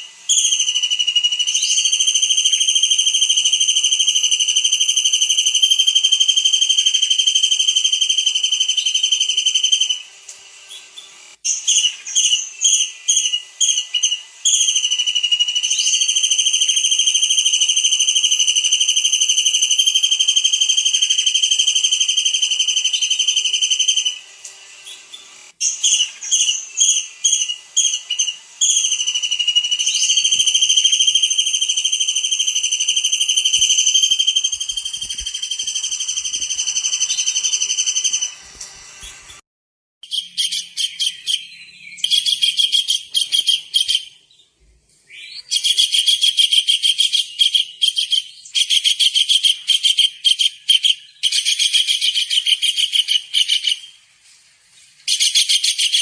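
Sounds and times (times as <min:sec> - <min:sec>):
shrill high-pitched trill: 0:00.3 - 0:10.1, 0:25.6 - 0:38.4.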